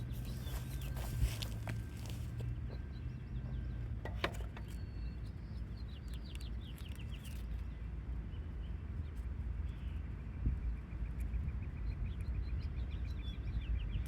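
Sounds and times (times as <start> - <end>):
songbird chirping: 0.0 - 7.6
low outdoor rumble: 0.0 - 14.0.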